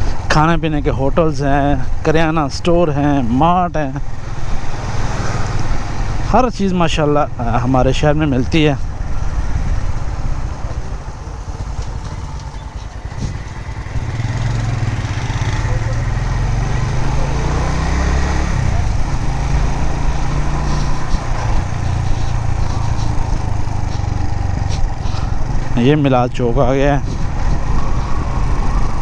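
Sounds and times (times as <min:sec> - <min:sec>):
wind rumble on microphone: 0:01.8 - 0:17.3, 0:17.9 - 0:29.0
motorcycle engine running: 0:08.7 - 0:26.1.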